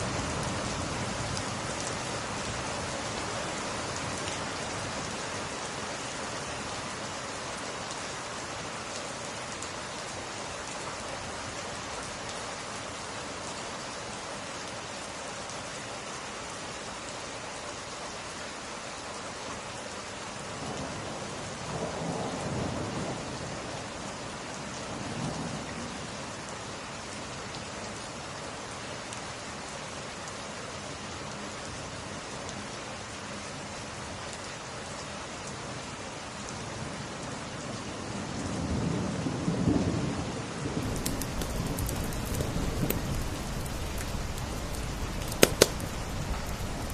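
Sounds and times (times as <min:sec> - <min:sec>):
rain pattering on window glass: 0:40.8 - 0:46.9
thunder rumbling: 0:40.8 - 0:46.9.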